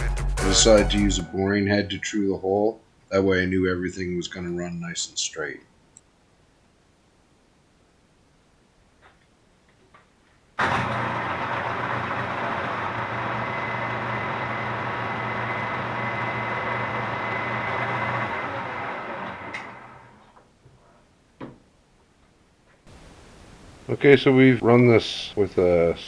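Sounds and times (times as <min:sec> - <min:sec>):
milling machine spindle whine: 0:10.6 - 0:20.2.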